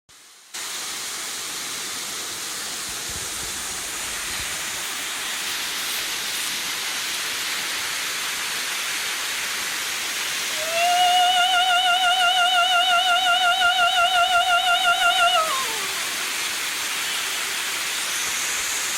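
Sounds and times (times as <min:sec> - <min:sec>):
waterfall rushing: 0:00.2 - 0:18.9
woman singing operatic high note: 0:10.5 - 0:16.2.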